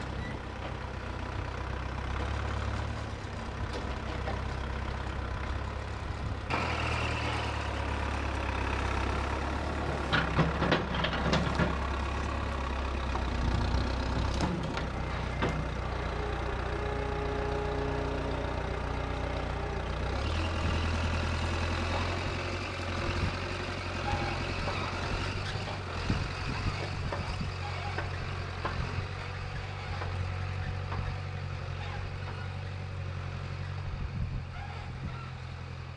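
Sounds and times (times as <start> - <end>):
heavy engine running: 0.0 - 35.9
sharp clanks and knocks: 9.9 - 12.1, 26.8 - 29.0.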